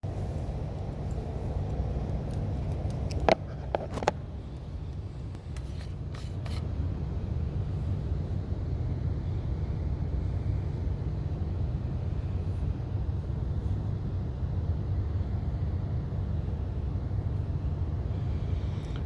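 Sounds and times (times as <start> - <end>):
car engine idling: 0.0 - 19.0
sharp engine clicks: 0.6 - 6.7.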